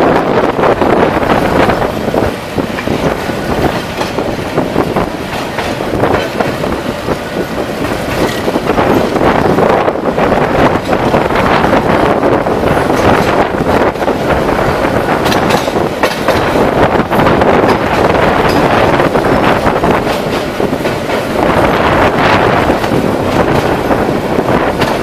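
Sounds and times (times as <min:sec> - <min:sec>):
train wheels clattering on rails: 0:00.0 - 0:25.0
wind noise on microphone: 0:00.0 - 0:25.0.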